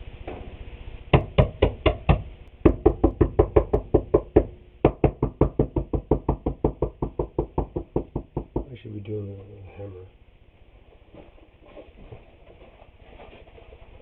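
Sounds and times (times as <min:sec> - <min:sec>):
rapid knocking on wooden boards: 0:01.1 - 0:08.8.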